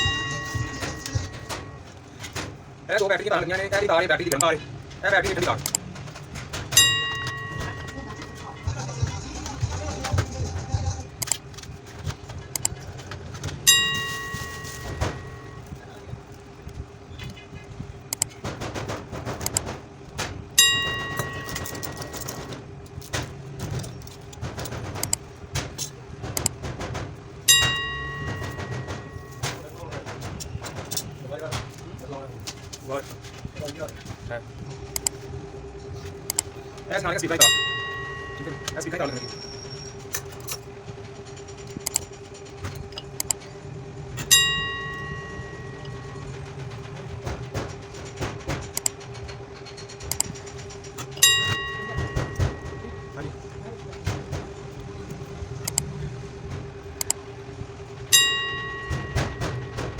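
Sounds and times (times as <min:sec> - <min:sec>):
sharp ringing metallic clink: 0:00.0 - 0:01.8, 0:06.8 - 0:08.6, 0:20.6 - 0:22.4, 0:27.5 - 0:29.4, 0:37.4 - 0:39.9, 0:44.3 - 0:46.2, 0:51.2 - 0:53.2, 0:58.1 - 0:59.9
metal piece ringing: 0:00.0 - 0:02.2, 0:06.6 - 0:08.7, 0:13.6 - 0:15.8, 0:20.6 - 0:23.1, 0:27.4 - 0:29.8, 0:36.3 - 0:42.1, 0:42.7 - 0:47.6, 0:48.7 - 0:57.2, 0:58.0 - 0:59.9
metal tools clicking and rattling: 0:00.0 - 0:08.8, 0:11.2 - 0:34.3, 0:35.8 - 0:43.6, 0:44.2 - 0:56.1
steady hum: 0:00.0 - 0:59.9
steady low rumble: 0:00.0 - 0:59.9.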